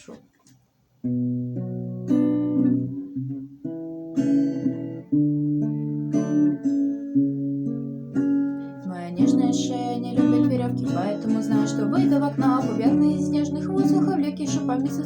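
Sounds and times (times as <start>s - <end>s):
acoustic guitar chords: 1.0s - 15.0s.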